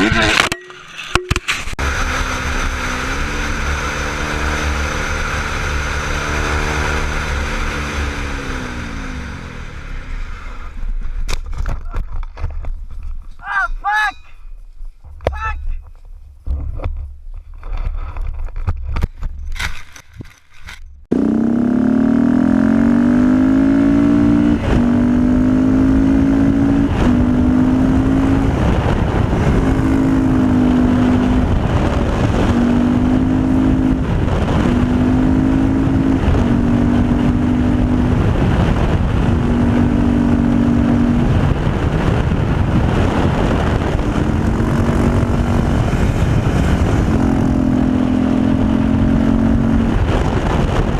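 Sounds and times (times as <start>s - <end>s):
wind and road noise: 0.0s - 50.9s
motorcycle engine running hard: 21.1s - 50.9s.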